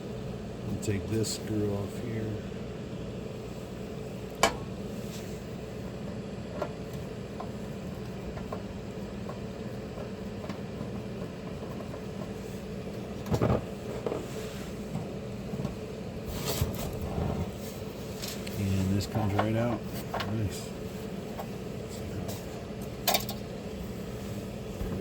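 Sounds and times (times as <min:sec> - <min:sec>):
steady background hum: 0:00.0 - 0:25.0
screwdriver clicks and clatter: 0:23.0 - 0:23.4.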